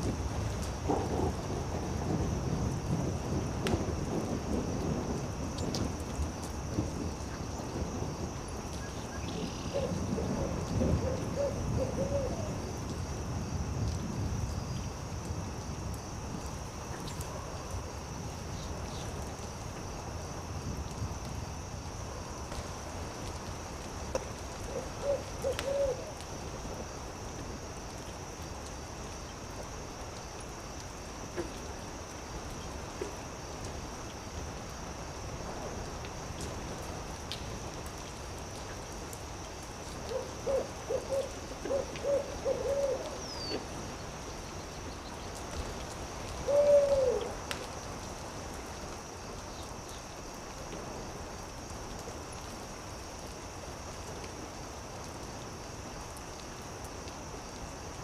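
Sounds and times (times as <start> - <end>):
campfire hissing and crackling: 0.0 - 58.0
owl hooting: 9.3 - 12.6, 24.7 - 26.2, 40.1 - 43.6, 46.4 - 47.4.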